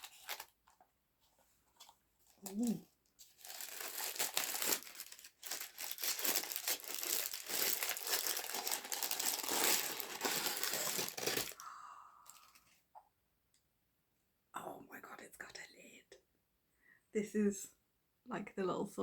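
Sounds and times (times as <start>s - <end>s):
packaging crinkling and tearing: 0.0s - 0.7s, 1.8s - 11.6s.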